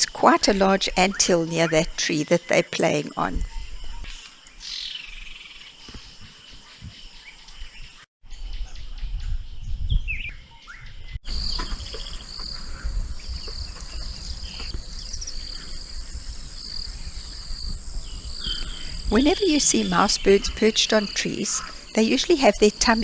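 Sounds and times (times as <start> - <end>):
insect drone: 11.2 - 23.0.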